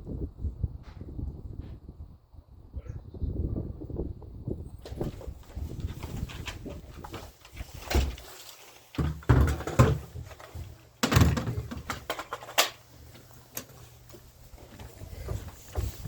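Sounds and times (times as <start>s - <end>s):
hard objects knocking and clunking: 9.0s - 12.8s.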